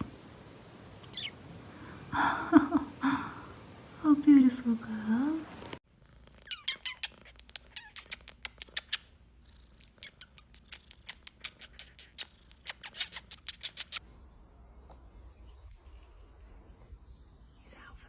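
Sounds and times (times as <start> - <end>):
cat purring: 5.2 - 14.0.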